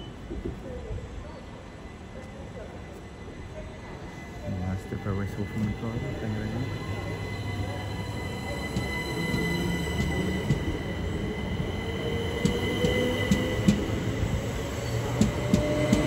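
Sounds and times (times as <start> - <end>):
train wheel squeal: 4.1 - 16.0.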